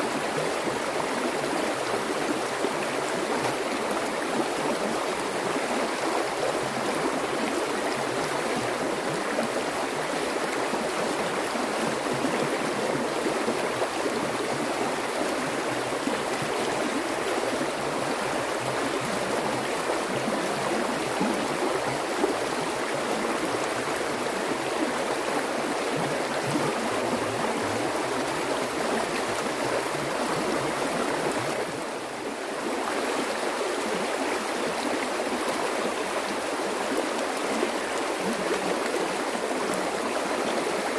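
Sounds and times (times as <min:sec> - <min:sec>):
water rushing and gurgling: 0:00.0 - 0:40.9.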